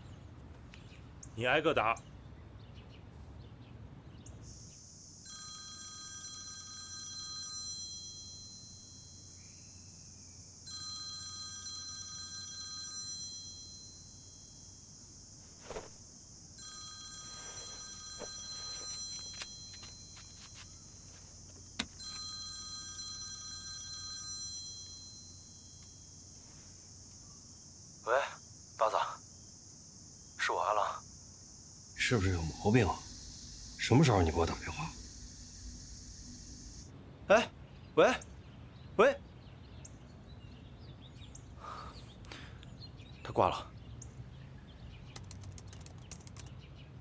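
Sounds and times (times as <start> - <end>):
electronic telephone ringing: 5.2 - 9.3, 10.7 - 14.6, 16.6 - 21.2, 21.8 - 26.1
high hiss: 31.0 - 36.9
sharp clicks: 45.1 - 46.6.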